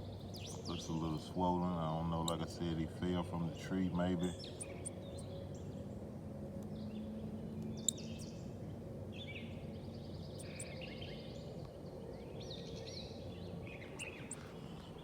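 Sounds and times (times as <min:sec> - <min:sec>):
rapid bird trill: 0:00.0 - 0:01.4, 0:04.2 - 0:05.6, 0:10.3 - 0:10.8
small birds chirping: 0:00.0 - 0:06.0, 0:06.6 - 0:15.0
low outdoor rumble: 0:00.0 - 0:15.0.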